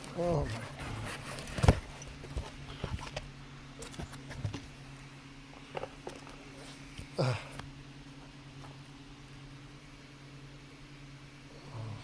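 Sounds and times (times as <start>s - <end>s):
steady low hum: 0.0s - 12.0s
handling noise unboxing: 0.4s - 4.7s.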